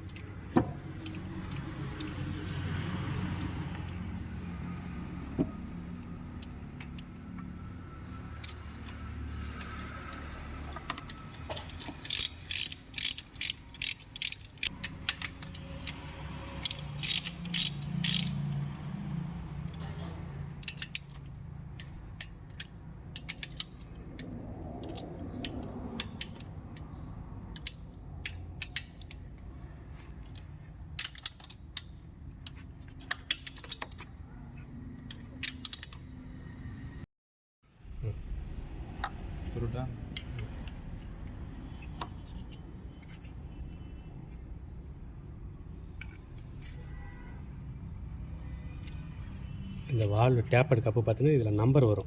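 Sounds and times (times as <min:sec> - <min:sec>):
ratchet wrench clicking: 0:10.9 - 0:18.6, 0:20.5 - 0:29.3, 0:30.2 - 0:34.1, 0:35.0 - 0:36.1, 0:40.1 - 0:44.8.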